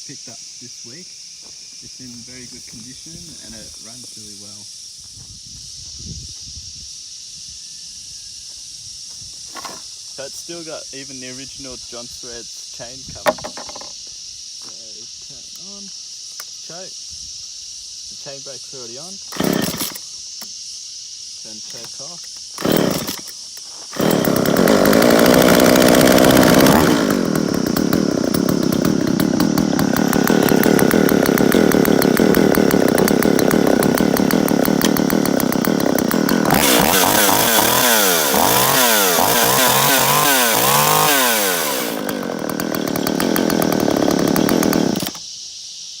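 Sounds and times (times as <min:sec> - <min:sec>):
chainsaw idling and revving: 0:19.3 - 0:20.0, 0:22.5 - 0:45.2.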